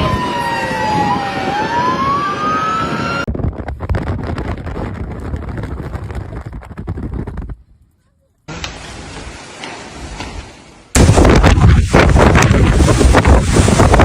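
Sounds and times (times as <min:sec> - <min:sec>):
emergency vehicle siren wailing: 0:00.0 - 0:03.3
wind buffeting microphone: 0:00.0 - 0:08.0, 0:11.0 - 0:14.0.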